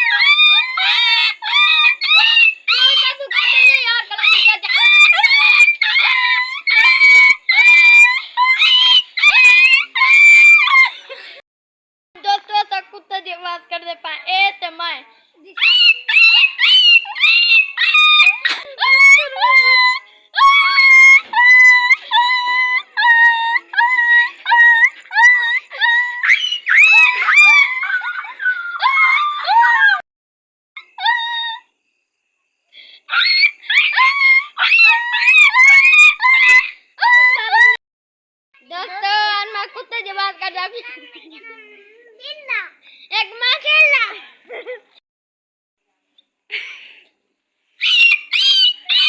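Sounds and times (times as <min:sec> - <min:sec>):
boy imitating dog yelps: 0:00.0 - 0:11.0, 0:15.5 - 0:30.0, 0:30.8 - 0:31.7, 0:33.1 - 0:37.8, 0:47.8 - 0:49.0
person whining howls: 0:15.6 - 0:30.0.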